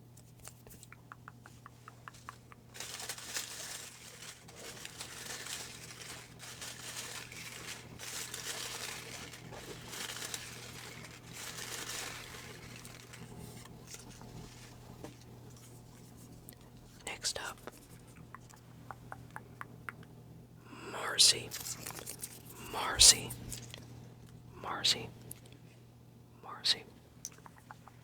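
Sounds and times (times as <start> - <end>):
paper rustling and crinkling: 2.1 - 16.7, 21.5 - 23.8.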